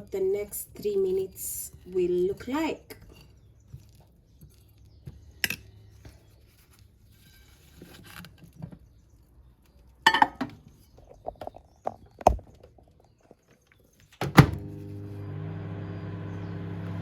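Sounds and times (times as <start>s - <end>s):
microwave door shutting: 14.2s - 15.4s.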